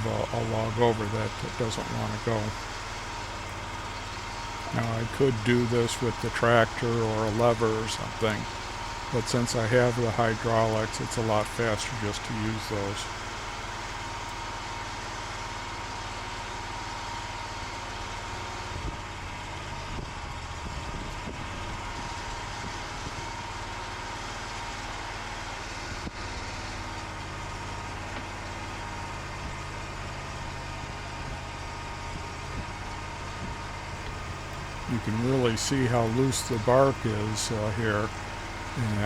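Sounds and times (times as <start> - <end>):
sawmill engine running: 0.0 - 14.4, 34.0 - 39.0.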